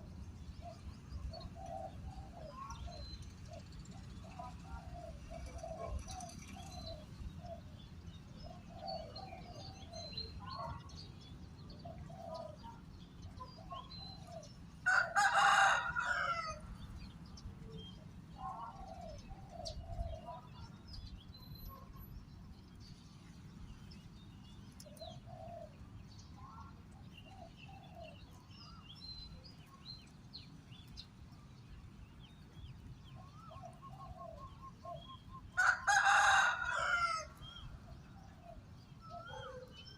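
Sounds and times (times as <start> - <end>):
doves cooing: 4.2 - 7.6, 18.4 - 20.4, 38.4 - 39.7
rooster crowing: 14.9 - 16.6, 35.6 - 37.4.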